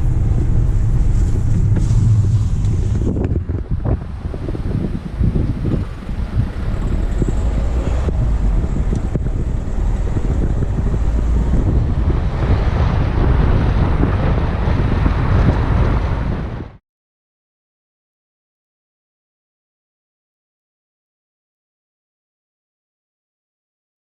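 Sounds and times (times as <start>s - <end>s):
car road rumble: 0.0s - 16.8s
wind buffeting microphone: 0.0s - 16.8s.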